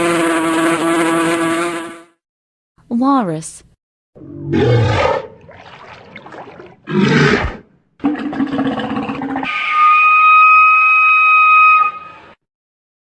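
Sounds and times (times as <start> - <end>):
walrus buzzing bellow: 0.0 - 2.2
walrus whistle: 9.4 - 12.4.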